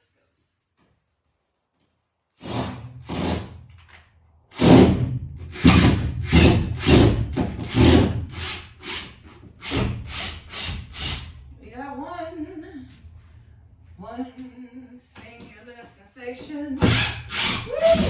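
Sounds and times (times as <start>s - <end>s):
power drill bursts: 2.4s - 3.5s, 4.5s - 11.3s.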